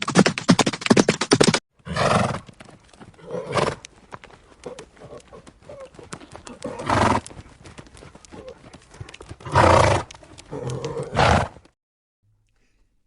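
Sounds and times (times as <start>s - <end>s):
hooves clopping: 0.0s - 11.7s
horse calling: 3.1s - 11.7s.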